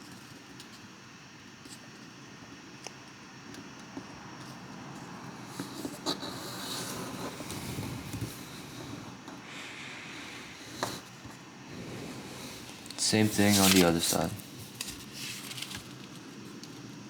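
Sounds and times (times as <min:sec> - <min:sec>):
paper rustling and crinkling: 0:12.1 - 0:17.0
crisp paper creasing ticks: 0:12.4 - 0:17.0.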